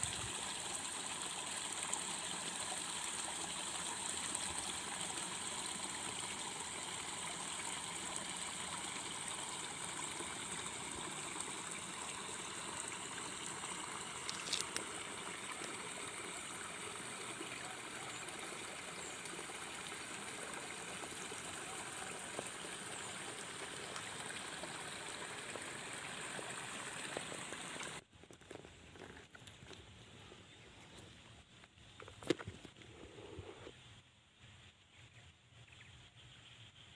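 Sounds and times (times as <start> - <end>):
water flowing: 0.0 - 28.0.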